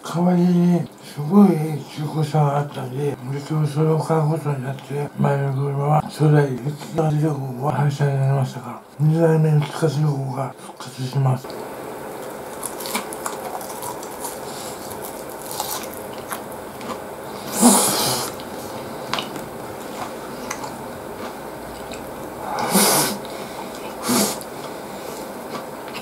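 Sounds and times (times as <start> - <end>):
chewing with small crunches: 11.5 - 22.4, 23.2 - 26.0.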